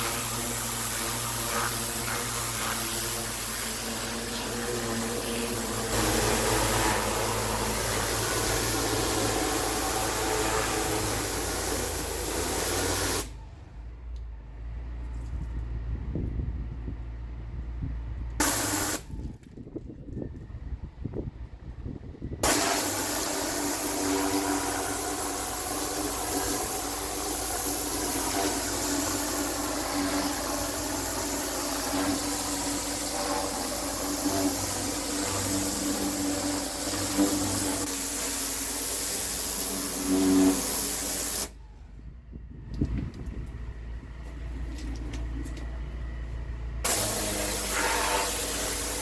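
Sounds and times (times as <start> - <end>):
steady drone: 0.0 - 13.2
pressure washer water jet hiss: 0.0 - 13.4, 18.4 - 19.1, 22.4 - 41.6, 46.8 - 49.0.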